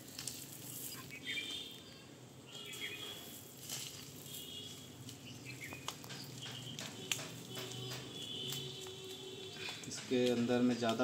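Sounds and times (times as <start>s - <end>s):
potting mix rustling: 0.0s - 11.0s
small birds chirping: 0.2s - 3.4s, 4.0s - 11.0s.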